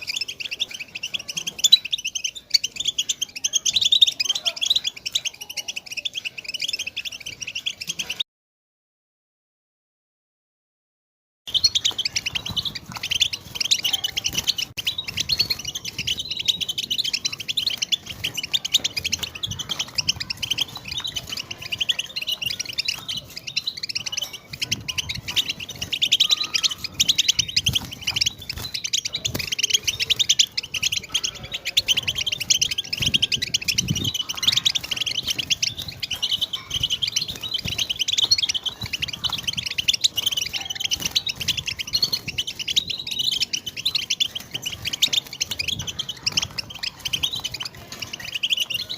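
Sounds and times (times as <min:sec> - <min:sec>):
flock of finches twittering: 0:00.0 - 0:08.2, 0:11.5 - 0:48.9.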